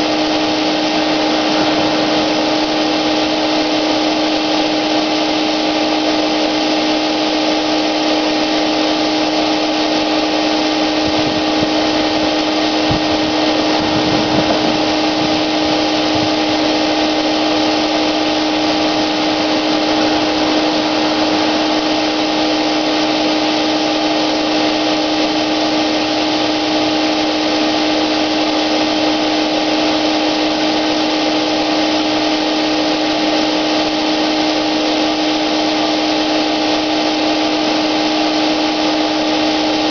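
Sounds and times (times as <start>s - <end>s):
rushing air: 0.0s - 27.0s
paint sprayer motor whine: 0.0s - 39.9s.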